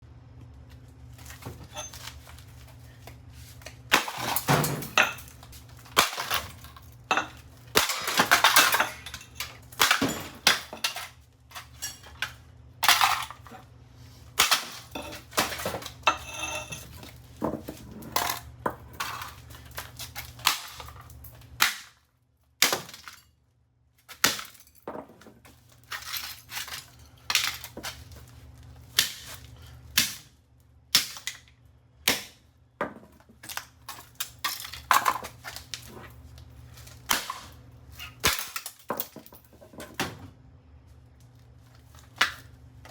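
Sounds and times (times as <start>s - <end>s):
broken pieces clinking: 1.2s - 3.1s, 3.9s - 13.6s, 14.4s - 21.9s, 24.2s - 28.2s, 33.4s - 36.0s.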